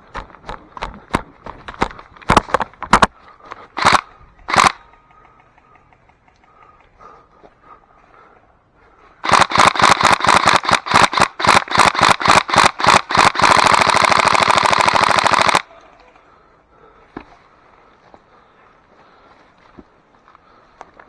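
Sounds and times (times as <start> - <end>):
airsoft full-auto burst: 3.8 - 4.8, 9.2 - 15.6
airsoft gun single shots: 3.8 - 4.8, 9.2 - 15.6.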